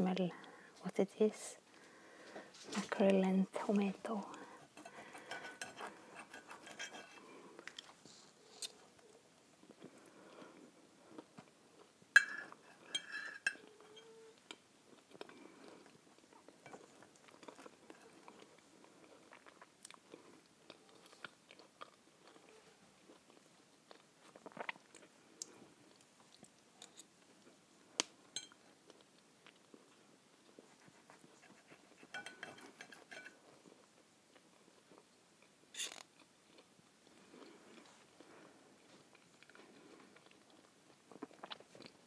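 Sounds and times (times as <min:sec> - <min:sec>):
close-up chewing: 0:04.3 - 0:42.0
knife and fork scraping a plate: 0:04.8 - 0:07.3, 0:12.2 - 0:14.2, 0:32.0 - 0:33.4.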